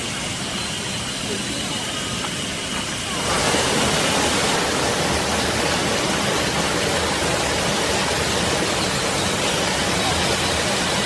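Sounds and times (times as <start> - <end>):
waterfall rushing: 3.0 - 11.0.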